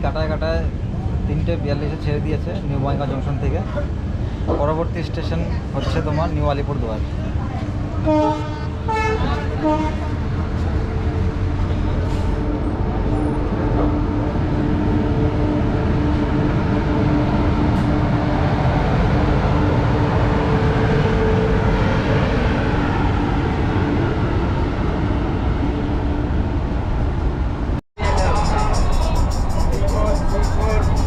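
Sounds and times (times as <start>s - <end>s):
train wheels rumbling on track: 6.8s - 25.7s, 26.4s - 31.0s.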